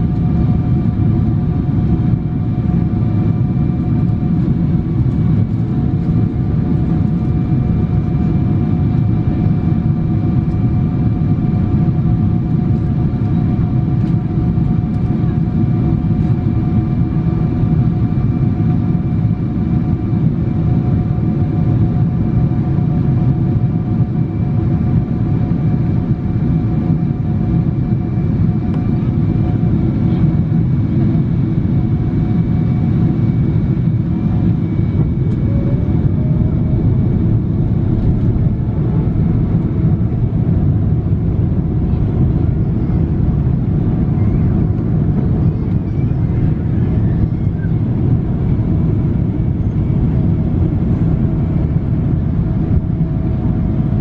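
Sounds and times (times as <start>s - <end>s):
airliner cabin engine rumble: 0.0s - 54.0s
faint whining tones: 31.0s - 40.9s, 42.2s - 52.2s.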